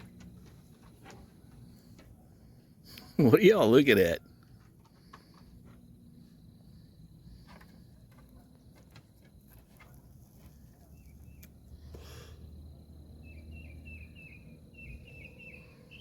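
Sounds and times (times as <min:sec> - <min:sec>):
bird chirping: 0:10.8 - 0:12.2, 0:13.0 - 0:16.0.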